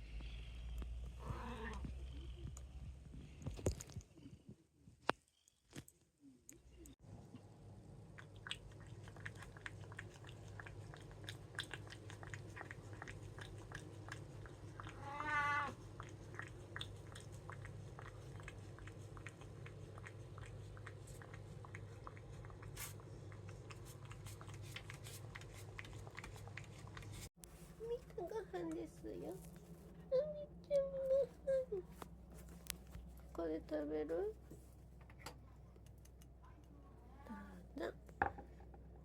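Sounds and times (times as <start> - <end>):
cat chewing food: 7.4 - 15.0, 15.8 - 30.1
wavering cat cry: 14.9 - 15.8.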